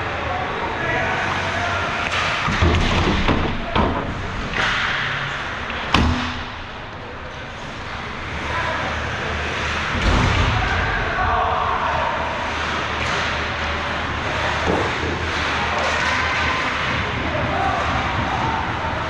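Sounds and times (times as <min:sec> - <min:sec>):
puck and sticks knocking boards: 0:02.0 - 0:06.8, 0:12.5 - 0:18.8
skates scraping ice: 0:12.0 - 0:19.0.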